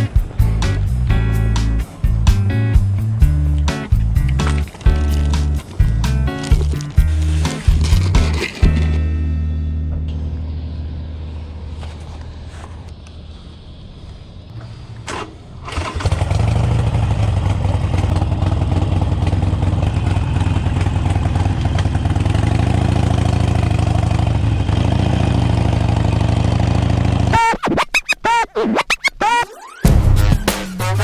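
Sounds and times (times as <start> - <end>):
motorcycle engine idling: 0.0 - 11.6, 15.7 - 27.3.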